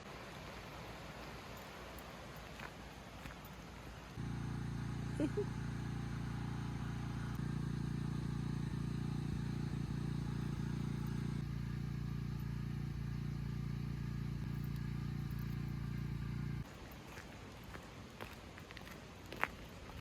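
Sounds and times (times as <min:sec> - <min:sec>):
low mechanical hum: 0:03.2 - 0:17.0.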